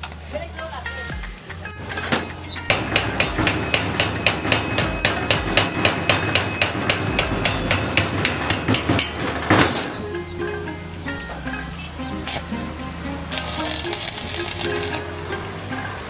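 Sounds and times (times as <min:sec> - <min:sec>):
hammer striking metal: 0:01.8 - 0:10.0.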